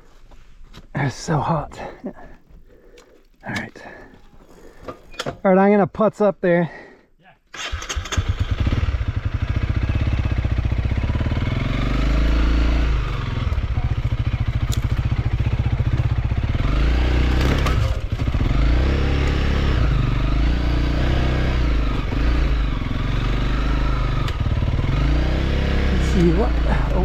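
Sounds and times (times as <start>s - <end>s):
small motorcycle engine revving: 7.6s - 27.0s.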